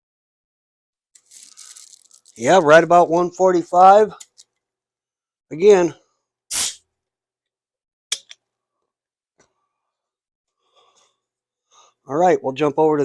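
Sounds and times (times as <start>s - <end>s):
sharp air hiss: 6.5s - 6.8s.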